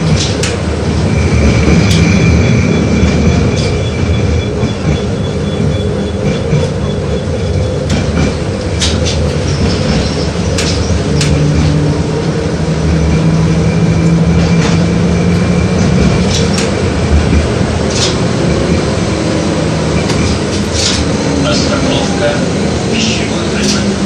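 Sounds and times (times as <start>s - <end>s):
tram wheels rumbling on rails: 0.0s - 24.0s
sharp clacks and rattles: 7.8s - 11.8s, 15.7s - 18.9s.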